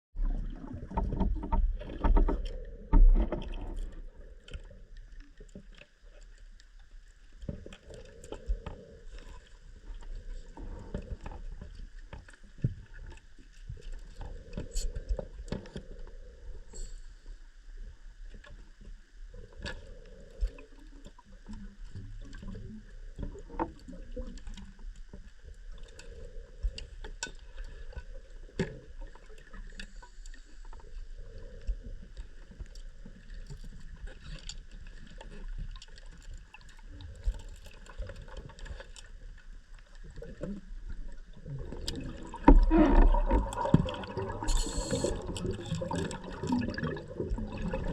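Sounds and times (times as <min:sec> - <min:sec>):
underwater low hum: 0:00.2 - 0:47.9
soft underwater swell: 0:36.6 - 0:47.9.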